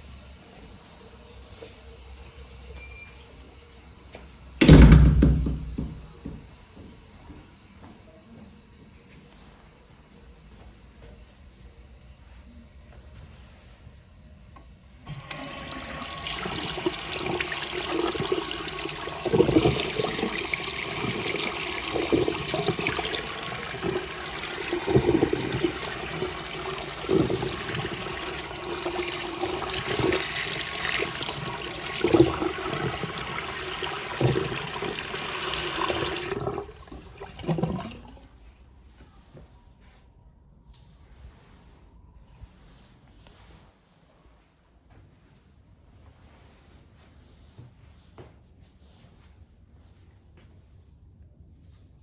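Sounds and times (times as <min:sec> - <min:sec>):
toilet flushing: 0:04.6 - 0:06.4, 0:15.1 - 0:38.4.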